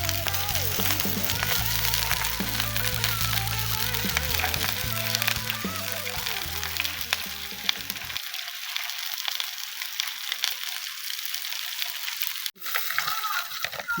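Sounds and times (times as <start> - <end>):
background song music: 0.0 - 8.2
food frying sizzle: 0.0 - 14.0.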